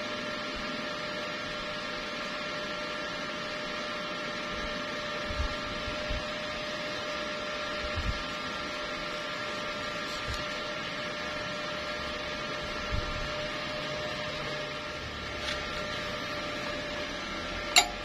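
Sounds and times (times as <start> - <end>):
machine fan hum and hiss: 0.0 - 18.0
hammer striking steel: 17.8 - 18.0.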